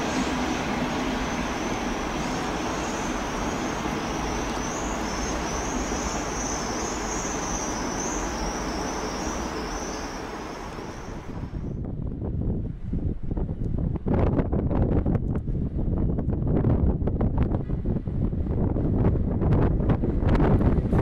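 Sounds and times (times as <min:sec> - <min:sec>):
high-pitched wavering squeal: 0:00.0 - 0:11.6
train rolling rumble: 0:00.0 - 0:12.2, 0:17.0 - 0:21.0.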